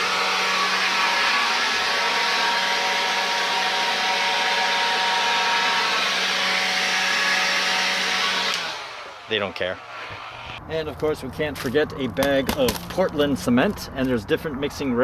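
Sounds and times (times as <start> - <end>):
leaf blower running: 0.0 - 10.6.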